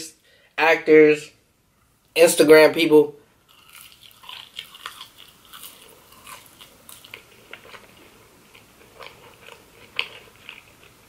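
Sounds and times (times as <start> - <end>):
man chewing with wet smacks: 3.5 - 11.0.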